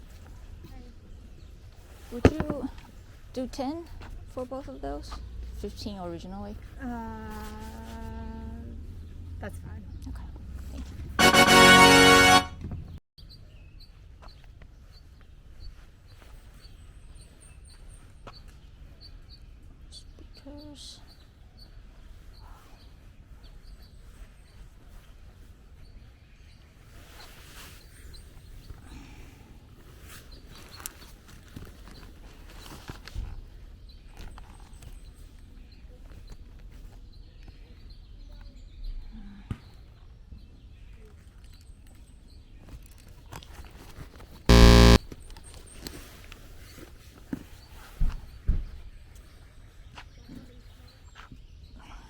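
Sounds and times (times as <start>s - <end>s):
loud buzzing tone: 11.2s - 12.5s, 44.5s - 45.0s
rustle: 22.0s - 28.6s.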